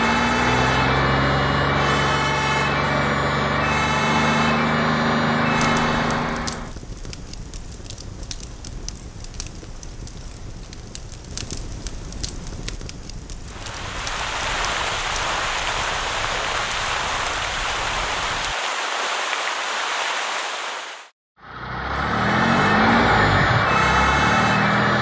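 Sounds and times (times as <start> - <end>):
cartoon fire crackling: 5.4 - 18.6
water spraying from fire hose: 5.5 - 21.1.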